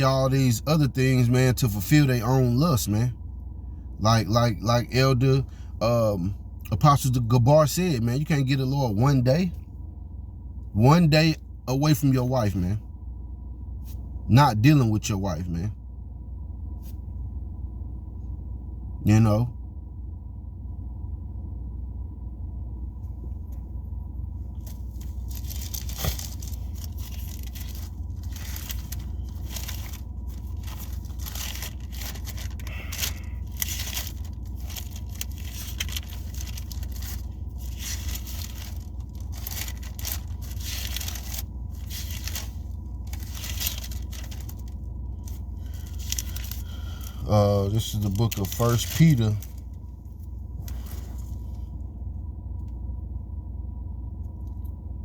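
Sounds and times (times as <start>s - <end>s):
low hum: 0.0s - 55.0s
book pages rustling: 24.6s - 47.2s.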